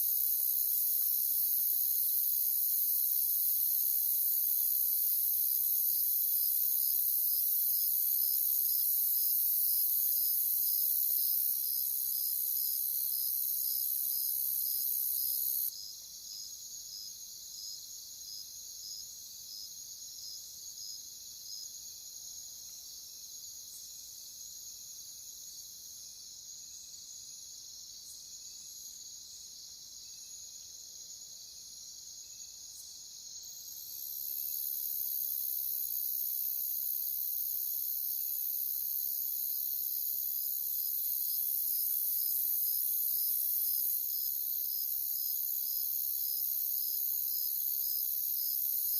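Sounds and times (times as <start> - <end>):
crickets chirping chorus: 0.0 - 48.9
slow regular cricket chirp: 0.0 - 48.9.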